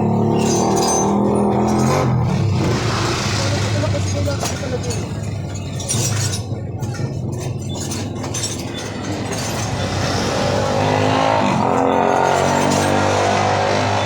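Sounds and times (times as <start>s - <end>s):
scooter engine running: 0.0s - 5.1s.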